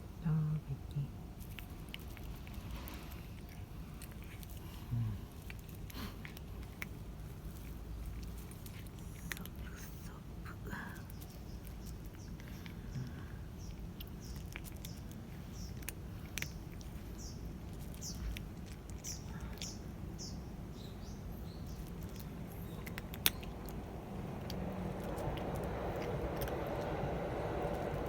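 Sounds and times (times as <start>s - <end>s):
low steady hum: 0.0s - 28.0s
small bird chirping: 7.5s - 28.0s.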